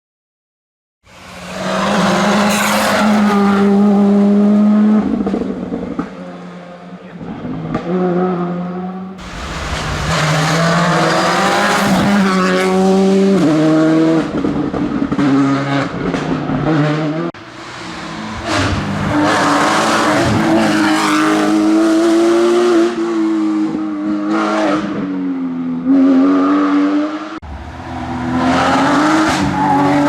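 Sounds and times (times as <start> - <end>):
car engine revving: 1.1 - 30.0
rally car engine revving hard: 1.4 - 6.5, 7.1 - 25.2, 25.8 - 30.0.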